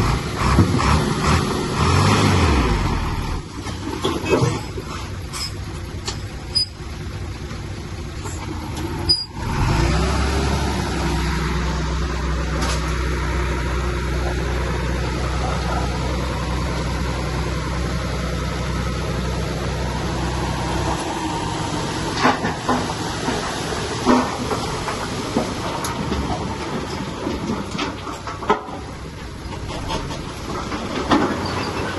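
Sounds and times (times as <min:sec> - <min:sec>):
heavy diesel engine running: 0:00.0 - 0:31.9.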